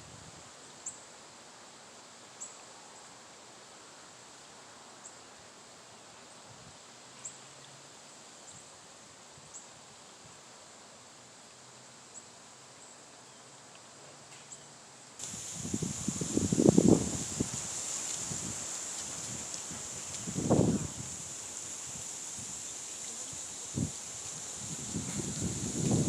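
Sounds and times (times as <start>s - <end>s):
faint high insect drone: 0.0s - 26.0s
wind through trees: 0.0s - 26.0s
wind buffeting microphone: 15.2s - 22.7s, 23.3s - 26.0s.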